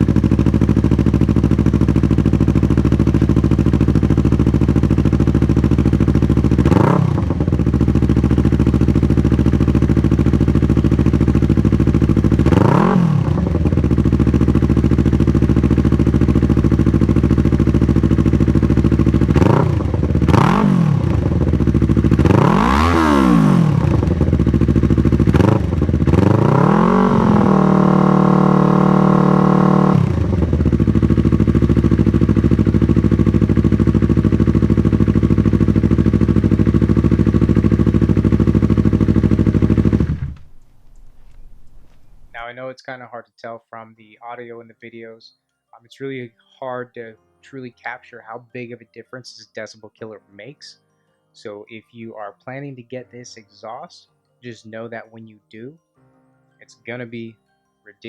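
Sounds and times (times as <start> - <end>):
motorcycle engine idling and revving: 0.0 - 42.4.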